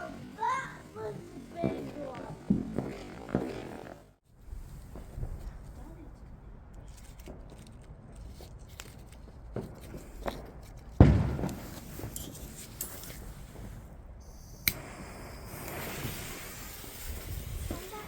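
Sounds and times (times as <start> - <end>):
sharp firework crack: 0.0 - 5.6, 9.6 - 18.0
fireworks popping: 0.0 - 7.5, 9.2 - 18.0
loud firework bang echoing: 1.6 - 3.7, 11.0 - 12.1.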